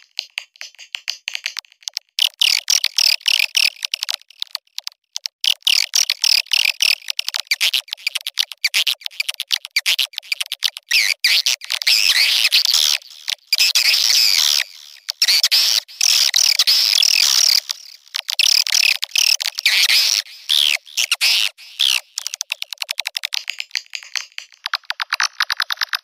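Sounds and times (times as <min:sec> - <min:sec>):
rapid sharp clicking notes: 0:21.8 - 0:26.0.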